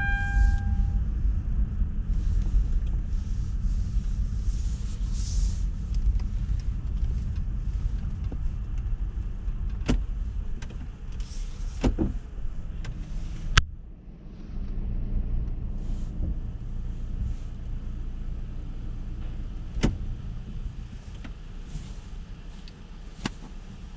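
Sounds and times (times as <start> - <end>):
car wash rumble: 0.0 - 23.9.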